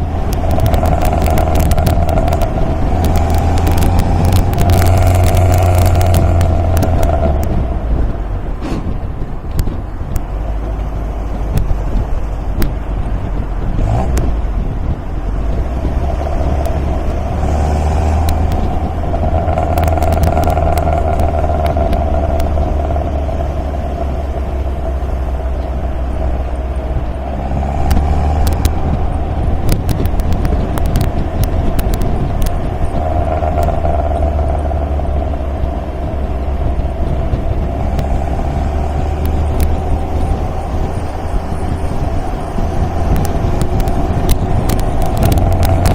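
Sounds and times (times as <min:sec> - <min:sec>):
sharp ticks: 0:00.0 - 0:07.7, 0:15.8 - 0:23.4, 0:27.6 - 0:35.3, 0:36.7 - 0:45.9
car engine running: 0:00.0 - 0:45.9.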